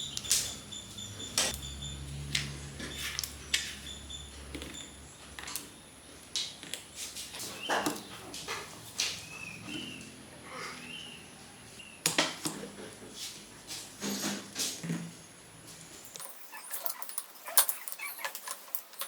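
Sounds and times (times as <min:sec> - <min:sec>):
hand tools clicking and knocking: 0:16.2 - 0:19.0.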